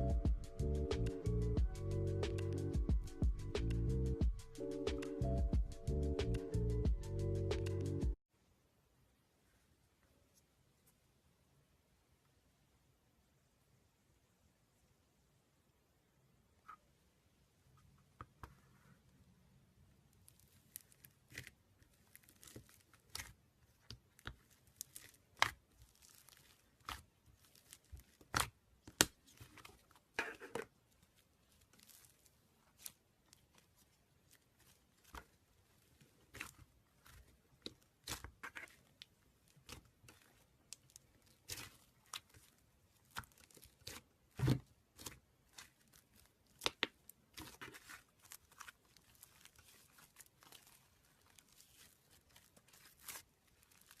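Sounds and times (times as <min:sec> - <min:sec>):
slime crackling and popping: 0:20.1 - 0:30.0, 0:31.1 - 0:54.0.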